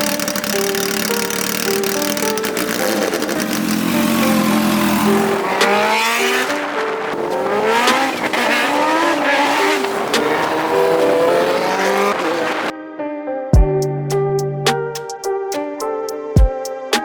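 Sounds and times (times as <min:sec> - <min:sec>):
motorcycle engine accelerating: 0:00.0 - 0:12.7.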